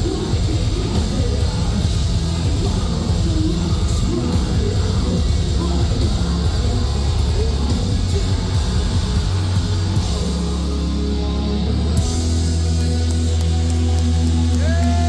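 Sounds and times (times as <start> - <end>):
metalcore band playing: 0.0 - 15.0.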